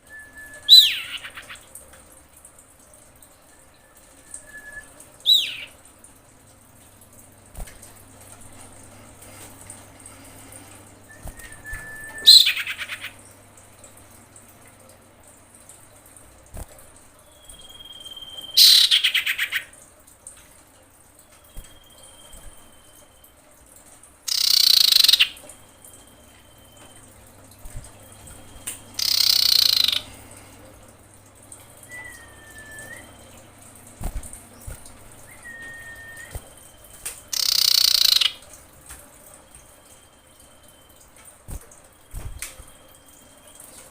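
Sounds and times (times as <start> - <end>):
bird whistling call: 0.0 - 1.6, 3.8 - 5.7, 11.1 - 13.1, 17.3 - 19.6, 24.3 - 25.4, 28.5 - 30.2, 31.8 - 33.2, 35.3 - 38.4
bird harsh screeching calls: 5.3 - 5.7, 18.6 - 19.3.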